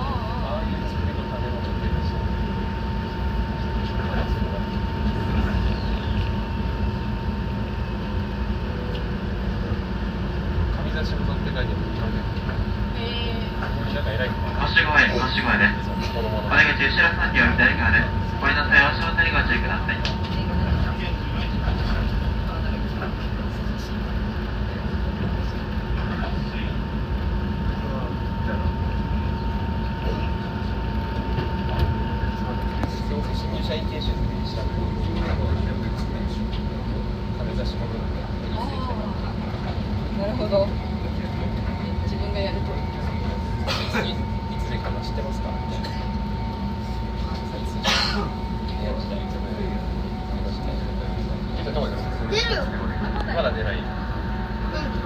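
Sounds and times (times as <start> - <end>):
train rumble: 0.0 - 55.0
thin constant whine: 12.8 - 26.9, 27.6 - 55.0.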